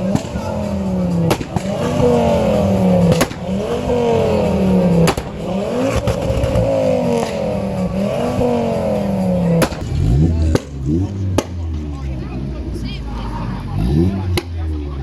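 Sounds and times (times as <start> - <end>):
car engine revving: 0.0 - 15.0
sharp cracks: 1.2 - 2.1, 3.0 - 3.7, 4.9 - 7.5, 9.6 - 11.6.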